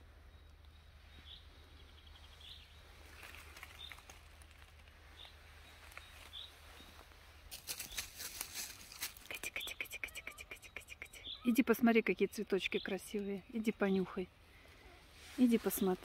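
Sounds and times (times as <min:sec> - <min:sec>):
footsteps on dry leaf litter: 0:02.9 - 0:09.4.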